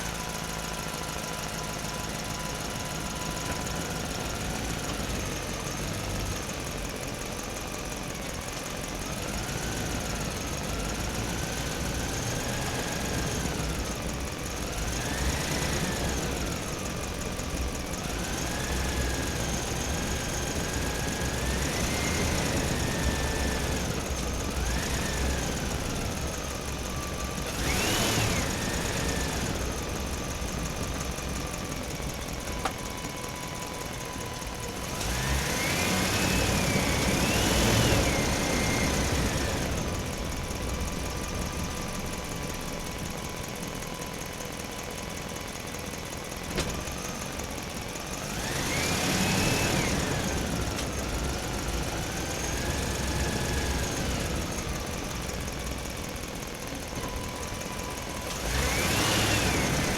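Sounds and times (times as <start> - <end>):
small electric motor whining: 10.7 - 44.1, 48.2 - 59.9.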